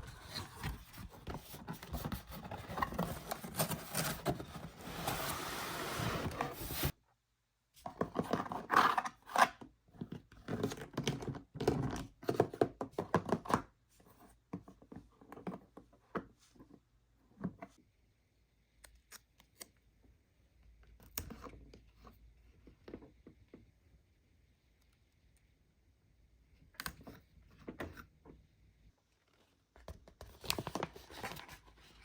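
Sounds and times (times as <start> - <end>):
packaging tearing and scraping: 2.4 - 6.9.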